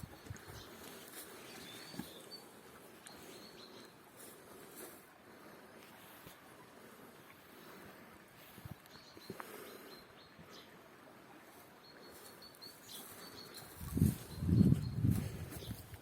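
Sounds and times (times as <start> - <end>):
small birds chirping: 0.0 - 4.9, 8.6 - 10.8, 11.5 - 16.0.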